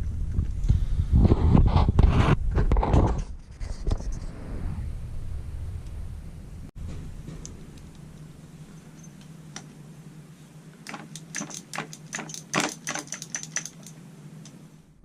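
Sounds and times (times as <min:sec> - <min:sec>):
steady low hum: 0:04.0 - 0:15.0
metal tools clinking and rattling: 0:08.7 - 0:09.2, 0:10.9 - 0:14.0
scattered clicks: 0:10.8 - 0:14.6.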